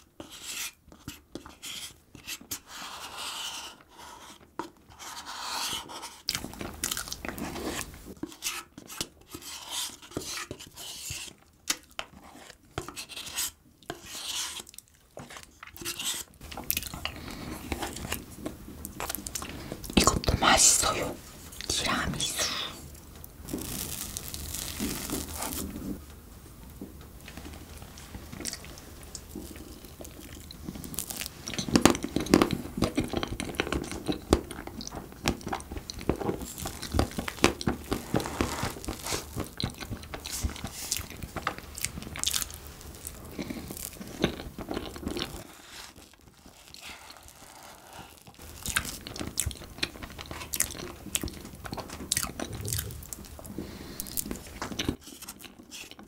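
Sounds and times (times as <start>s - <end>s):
wet chewing and mouth smacks: 6.3s - 7.4s, 16.5s - 17.3s, 28.3s - 37.3s, 39.3s - 45.4s, 48.6s - 56.0s.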